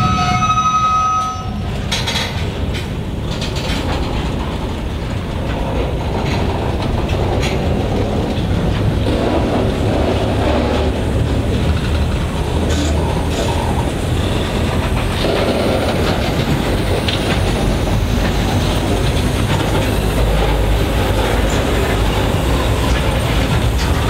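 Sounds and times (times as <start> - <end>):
steel wheels rumbling on rail: 0.0 - 24.0
clicks and clanks: 1.6 - 13.7.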